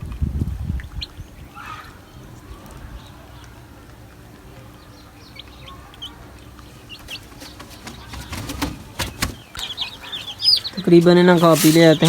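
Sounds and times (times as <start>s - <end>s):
birds chirping: 0.7s - 12.0s
wings flapping: 6.6s - 12.0s.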